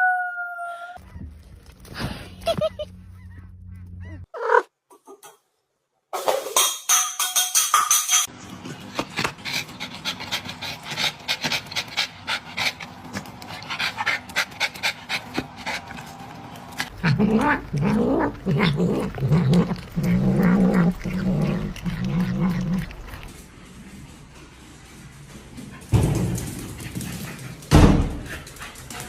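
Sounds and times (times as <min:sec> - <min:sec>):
dog howling: 0:00.0 - 0:01.0
dog panting: 0:08.8 - 0:16.9, 0:26.5 - 0:29.0.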